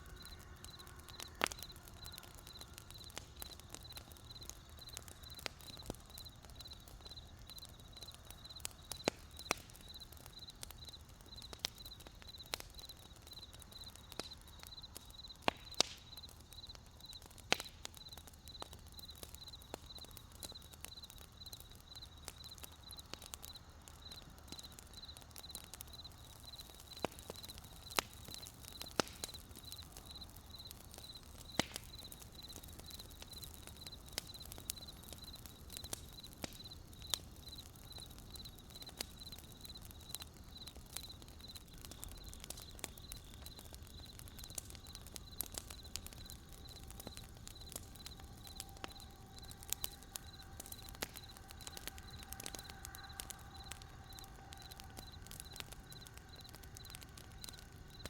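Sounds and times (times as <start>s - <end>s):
campfire crackling and popping: 0.0s - 58.0s
cricket chirping: 0.0s - 58.0s.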